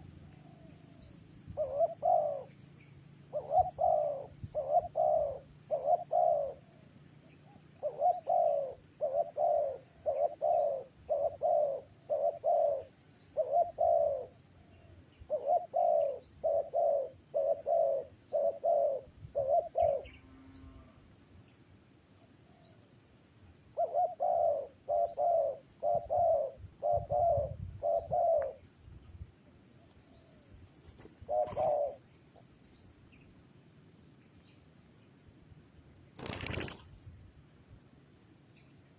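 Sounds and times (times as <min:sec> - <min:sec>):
dove cooing: 0:00.0 - 0:02.7, 0:03.3 - 0:20.8, 0:23.7 - 0:28.6, 0:29.8 - 0:32.1.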